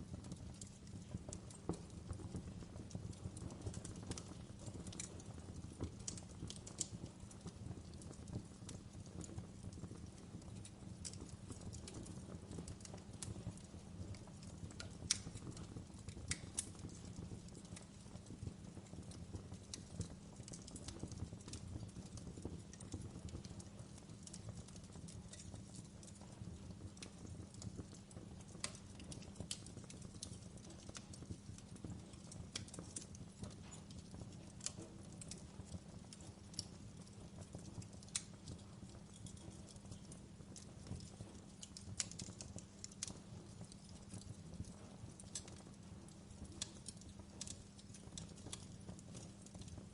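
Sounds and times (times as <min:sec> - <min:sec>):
wood fire crackling and popping: 0:00.0 - 0:49.9.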